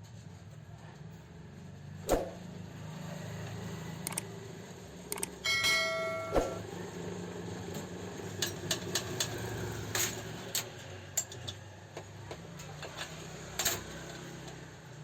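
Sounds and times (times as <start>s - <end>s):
light clicks and taps of tools: 7.7s - 14.7s.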